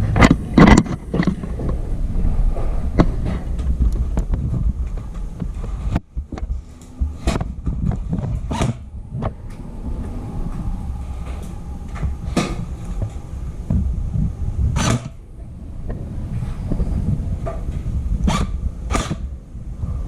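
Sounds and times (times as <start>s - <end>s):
wind rumble on microphone: 0.0s - 20.0s
sharp cracks: 14.7s - 15.2s, 18.2s - 19.4s.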